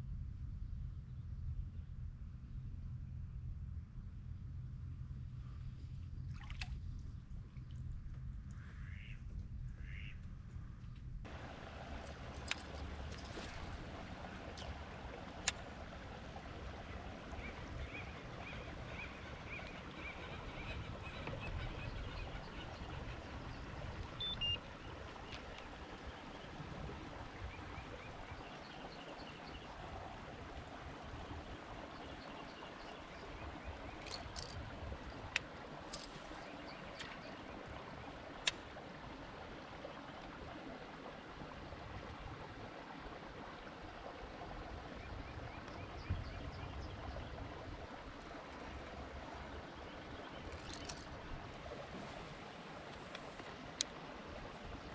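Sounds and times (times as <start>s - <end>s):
water lapping against kayak hull: 11.3s - 54.9s.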